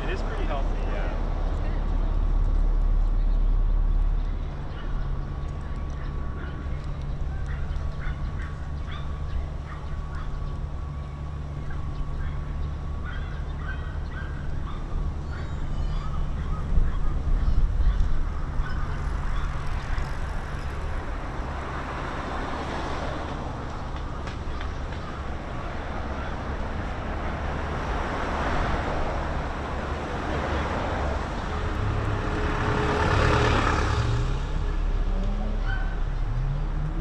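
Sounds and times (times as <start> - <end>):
traffic rumble: 0.0 - 37.0
vehicles passing by: 0.0 - 37.0
vehicle accelerating: 25.4 - 37.0.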